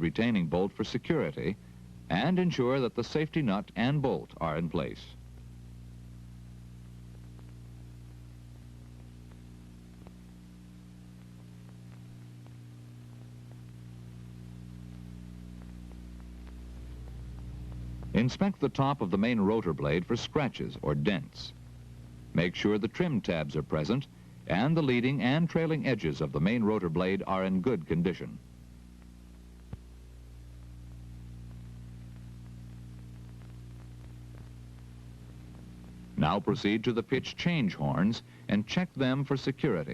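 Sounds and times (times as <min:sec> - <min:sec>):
low electrical hum: 0:00.0 - 0:39.9
faint ticks: 0:06.8 - 0:18.2
faint scattered clicks: 0:06.8 - 0:18.9, 0:31.5 - 0:36.2.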